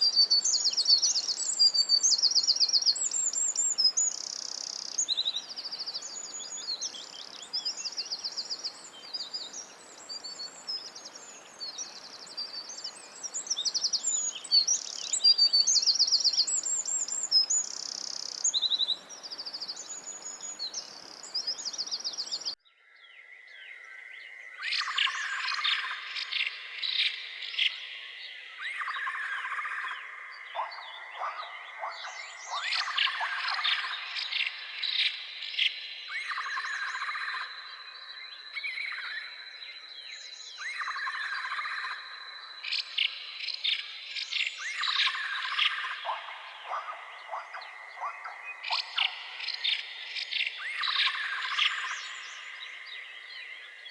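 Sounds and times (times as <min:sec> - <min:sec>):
background hiss: 0:00.0 - 0:22.6
songbirds singing: 0:00.0 - 0:53.9.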